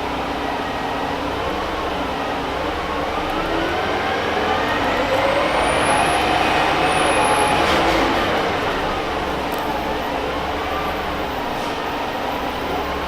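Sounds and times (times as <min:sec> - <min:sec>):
bus engine accelerating: 0:00.0 - 0:13.0.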